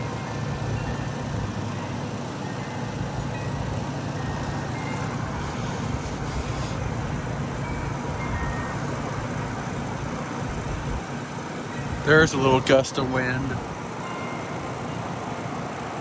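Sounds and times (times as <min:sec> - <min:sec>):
wind chime notes: 0:00.0 - 0:09.1, 0:11.7 - 0:15.1
wind on microphone: 0:04.4 - 0:11.0.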